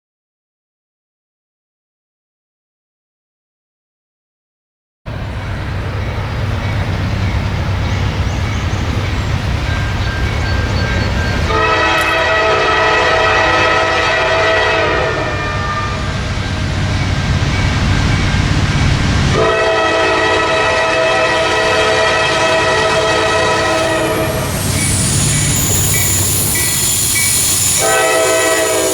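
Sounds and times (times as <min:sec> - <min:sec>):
diesel locomotive engine rumbling: 0:05.1 - 0:28.9
multi-tone air horn blasts: 0:11.5 - 0:16.2, 0:19.3 - 0:24.6, 0:27.6 - 0:28.9.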